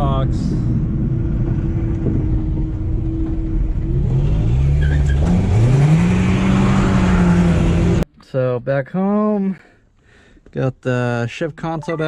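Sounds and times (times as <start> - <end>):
car engine accelerating: 0.3 - 8.0.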